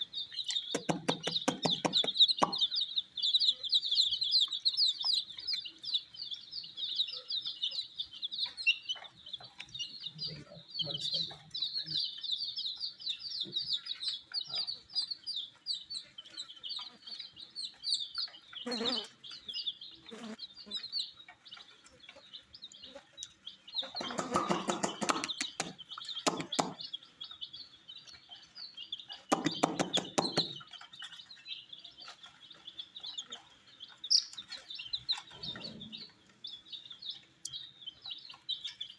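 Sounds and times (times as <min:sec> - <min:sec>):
baby chicks peeping: 0:00.0 - 0:38.9
tapping and rustling: 0:00.8 - 0:02.7, 0:24.0 - 0:26.8, 0:29.3 - 0:31.0.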